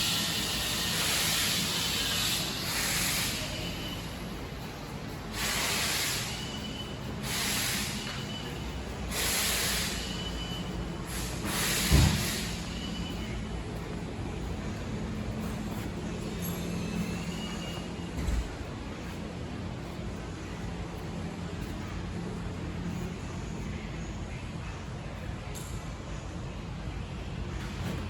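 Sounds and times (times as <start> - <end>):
air hiss bursts: 0.0 - 4.0, 5.3 - 13.4.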